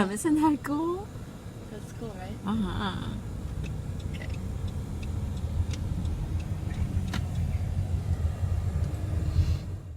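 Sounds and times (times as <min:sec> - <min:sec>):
outdoor low rumble: 0:00.6 - 0:09.9.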